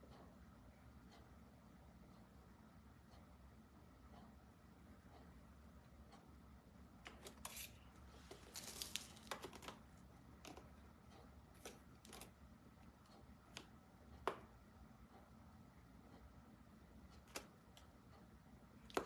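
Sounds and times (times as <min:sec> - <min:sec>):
clicks and rustles of handling: 0:07.0 - 0:12.4.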